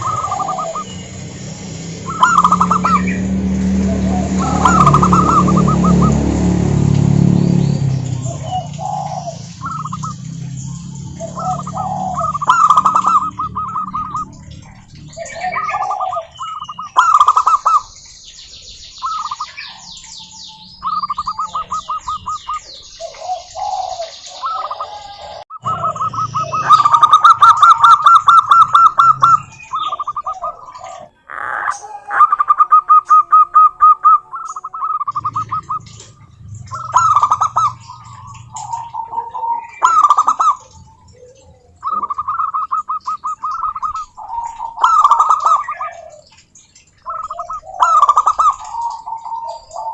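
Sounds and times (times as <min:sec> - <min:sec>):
doves cooing: 0:00.0 - 0:18.0, 0:19.0 - 0:49.9
bird chirps and trills: 0:00.0 - 0:49.9.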